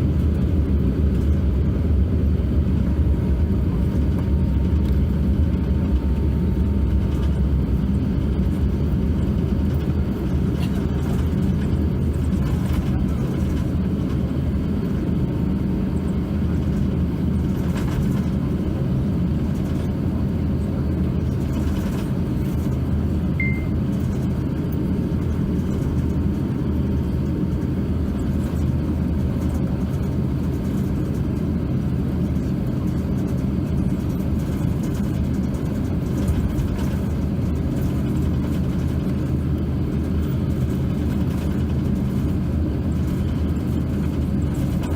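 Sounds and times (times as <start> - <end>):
aircraft engines low rumble: 0.0 - 44.9
steady hum: 22.5 - 28.3
faint high beep: 23.4 - 23.8.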